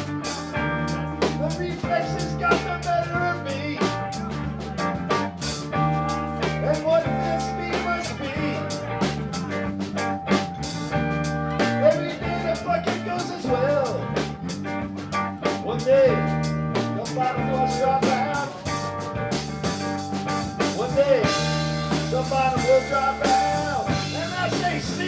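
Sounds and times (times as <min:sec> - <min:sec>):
band playing: 0:00.0 - 0:25.0
drum kit beat: 0:00.0 - 0:25.0
lead guitar bending pitch: 0:16.1 - 0:25.0.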